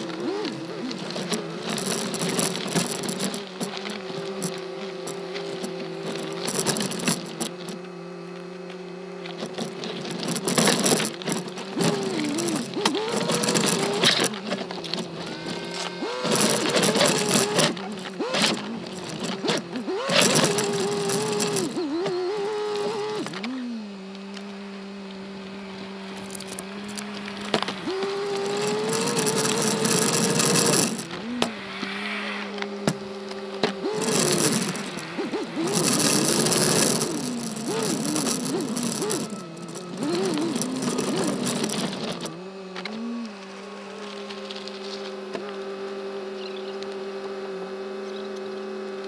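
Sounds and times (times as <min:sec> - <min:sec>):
camera rattling on its mount: 0:00.0 - 0:07.9, 0:09.3 - 0:23.5, 0:26.2 - 0:31.4, 0:32.7 - 0:42.4
car engine pulling at low speed: 0:00.0 - 0:49.0.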